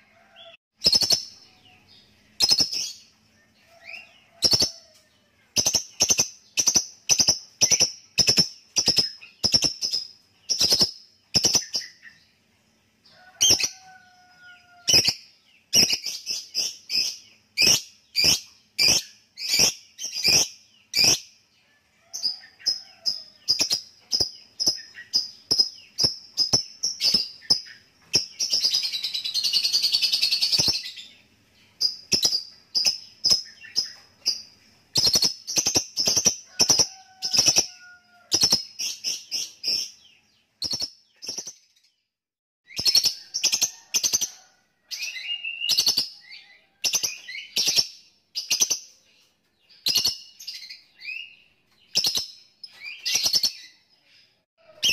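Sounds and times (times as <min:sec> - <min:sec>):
lovebird sharp high chirps: 0:00.8 - 0:01.4, 0:02.4 - 0:03.0, 0:05.6 - 0:12.0, 0:15.8 - 0:21.3, 0:31.8 - 0:37.7
lovebird chattering trill: 0:05.6 - 0:12.0.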